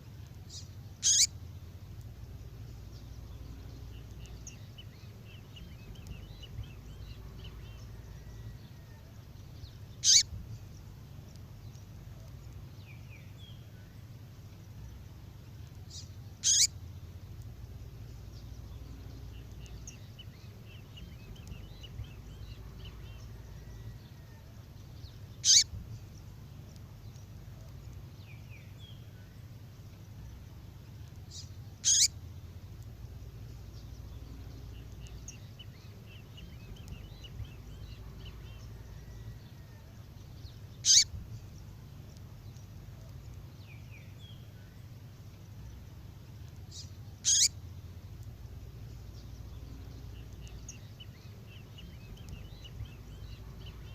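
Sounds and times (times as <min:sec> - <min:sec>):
low steady hum: 0:00.0 - 0:53.9
faint high bird twittering: 0:00.5 - 0:01.6, 0:02.6 - 0:10.9, 0:15.6 - 0:16.8, 0:17.7 - 0:30.4, 0:31.0 - 0:44.8, 0:45.6 - 0:47.7
sharp high bird call notes: 0:01.0 - 0:01.3, 0:10.0 - 0:10.3, 0:16.4 - 0:16.7, 0:25.4 - 0:25.7, 0:31.8 - 0:32.1, 0:40.8 - 0:41.1, 0:47.2 - 0:47.5.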